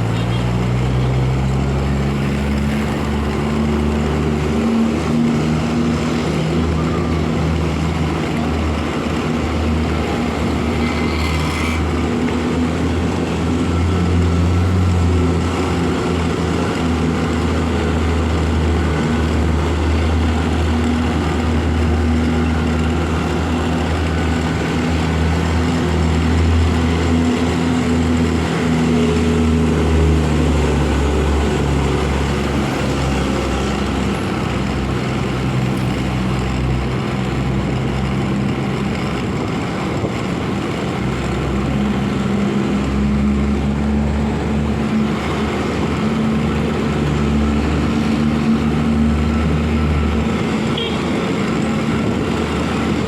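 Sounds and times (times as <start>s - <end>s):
wind and road noise: 0.0s - 53.0s
motorcycle engine running: 11.9s - 53.0s.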